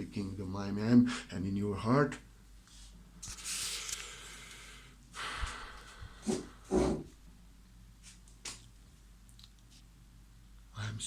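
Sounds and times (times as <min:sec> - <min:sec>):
man breathing: 0:03.7 - 0:07.1.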